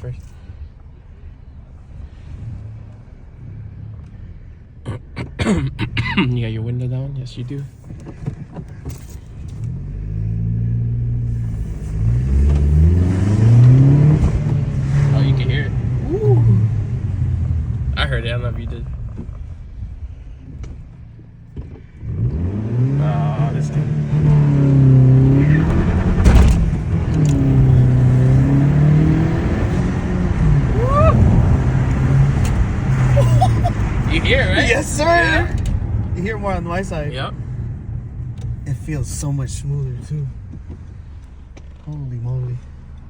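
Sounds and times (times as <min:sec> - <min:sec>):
car engine accelerating: 0:07.4 - 0:43.0
turbo intake whoosh: 0:09.7 - 0:39.2.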